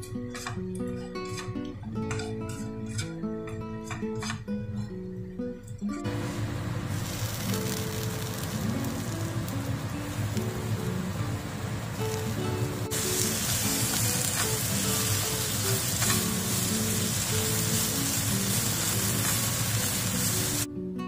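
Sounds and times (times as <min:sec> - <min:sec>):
guitar music: 0:00.0 - 0:21.0
chicken sizzling in a frying pan: 0:06.1 - 0:20.7.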